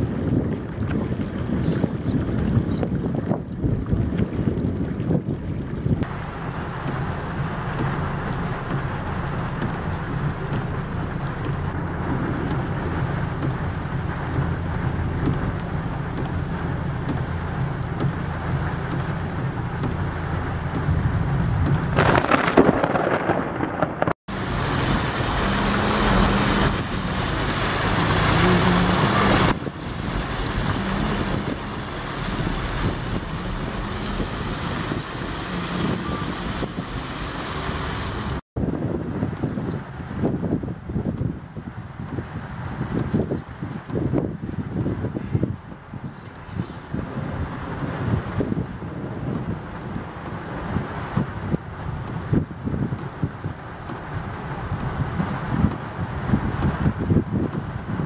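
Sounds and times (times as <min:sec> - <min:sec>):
heavy rain: 0:00.0 - 0:04.2, 0:05.8 - 0:58.0
low thunder rumble: 0:00.0 - 0:41.7
wind on microphone: 0:00.0 - 0:58.0.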